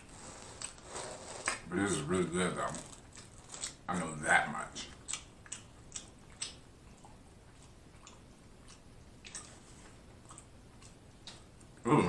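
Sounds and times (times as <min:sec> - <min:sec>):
chewing food: 0:00.0 - 0:03.9, 0:04.7 - 0:12.0
wet mouth clicks: 0:05.0 - 0:09.6.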